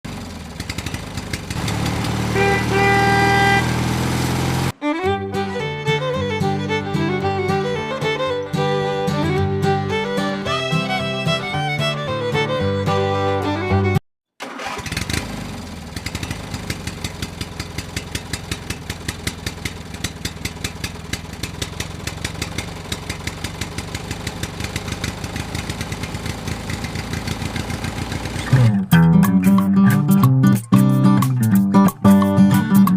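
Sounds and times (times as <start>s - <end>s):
small engine puttering: 0.1s - 4.8s, 14.4s - 29.0s
music: 4.8s - 14.0s, 28.5s - 32.9s.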